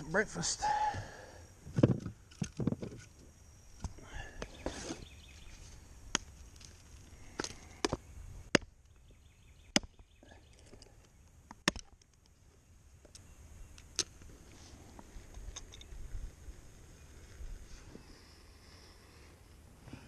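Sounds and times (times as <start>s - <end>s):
hatchet chopping wood: 9.7s - 10.0s, 11.5s - 12.0s.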